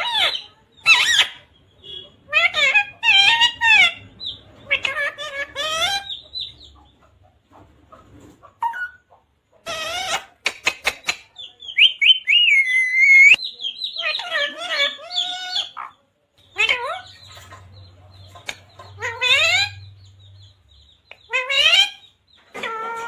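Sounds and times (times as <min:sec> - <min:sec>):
parrot squawking: 0:00.0 - 0:06.5, 0:09.6 - 0:11.1, 0:11.8 - 0:17.2, 0:18.4 - 0:19.9, 0:21.1 - 0:23.0
parrot chirping: 0:00.0 - 0:07.1, 0:08.6 - 0:23.0.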